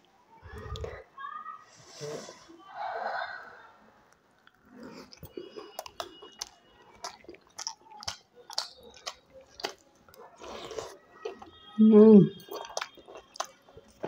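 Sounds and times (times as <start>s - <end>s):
wet chewing clicks and smacks: 4.1s - 11.5s, 12.3s - 14.0s.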